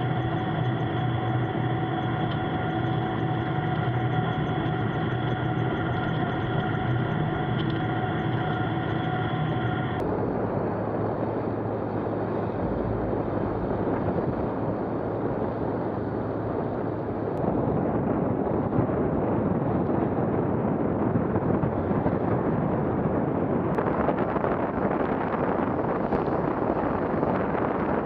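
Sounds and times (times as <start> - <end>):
vehicle engine running: 0.0 - 17.4
wind noise on microphone: 0.0 - 28.0.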